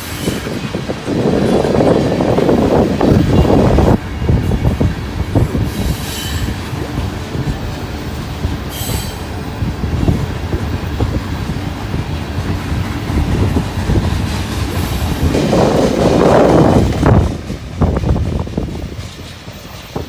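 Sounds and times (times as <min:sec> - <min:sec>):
freight train rumbling on track: 0:00.0 - 0:20.0
wind buffeting microphone: 0:00.0 - 0:20.0
high wheel squeal: 0:05.6 - 0:11.0.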